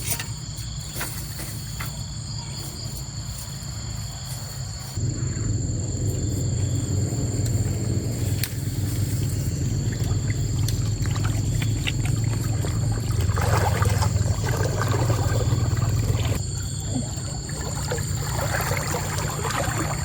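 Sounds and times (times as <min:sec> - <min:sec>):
water splashing: 0:06.8 - 0:20.0.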